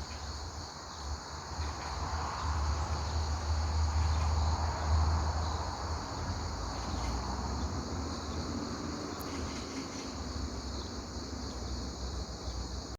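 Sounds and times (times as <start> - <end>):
high-pitched insect chorus: 0.0 - 12.9.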